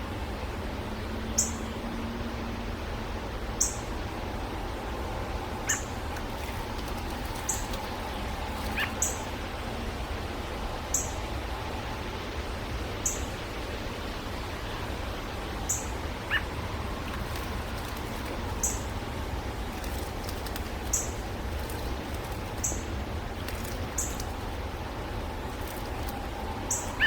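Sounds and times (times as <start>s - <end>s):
steady background noise: 0.0s - 27.0s
small birds chipping: 5.5s - 9.4s, 14.6s - 27.0s.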